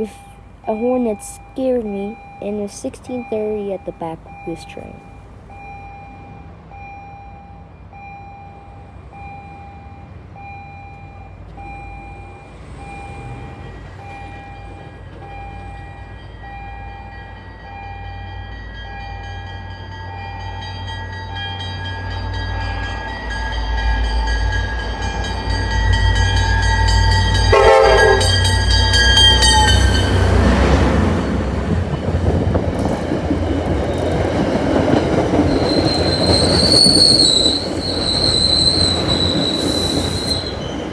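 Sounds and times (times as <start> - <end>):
train bell ringing: 0.0 - 40.9
train passing: 0.0 - 40.9
locomotive engine rumble: 9.8 - 40.9
locomotive horn: 27.4 - 31.6.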